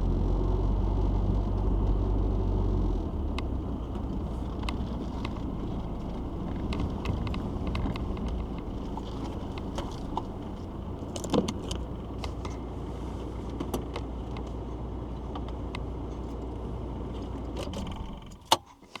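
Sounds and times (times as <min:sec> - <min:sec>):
car engine rumble from inside: 0:00.0 - 0:18.8
light clicks and rattles: 0:03.2 - 0:12.6.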